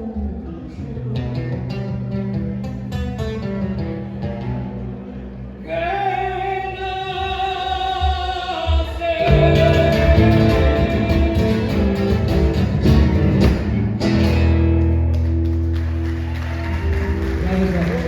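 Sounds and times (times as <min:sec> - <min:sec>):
strummed guitar: 0:00.0 - 0:05.6, 0:09.2 - 0:15.8
live band playing: 0:09.2 - 0:18.0.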